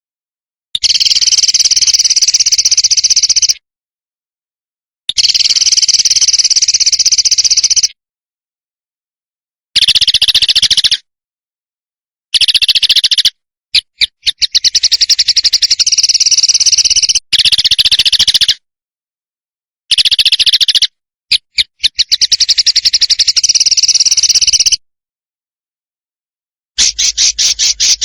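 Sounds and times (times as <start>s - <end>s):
songbird rattling trill: 0.8s - 3.6s, 5.1s - 8.0s, 9.8s - 11.0s, 12.4s - 18.6s, 19.9s - 24.8s, 26.8s - 28.0s
sharp bird notes: 26.8s - 28.0s.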